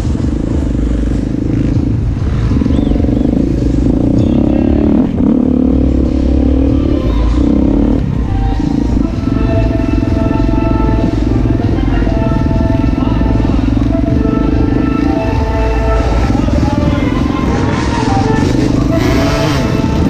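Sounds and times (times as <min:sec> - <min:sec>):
motocross engines revving: 0:00.0 - 0:20.0.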